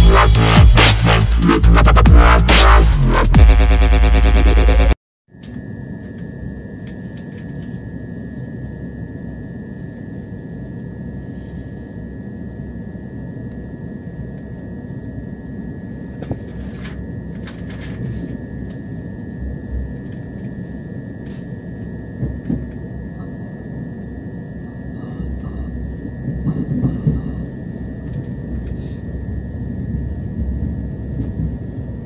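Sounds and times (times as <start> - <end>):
constant high whine: 0.0 - 32.0
train rumble inside carriage: 24.9 - 29.0, 29.9 - 32.0.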